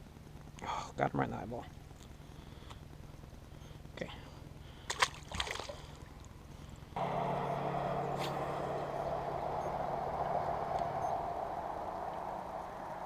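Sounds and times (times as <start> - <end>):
boat motor humming: 7.0 - 13.0.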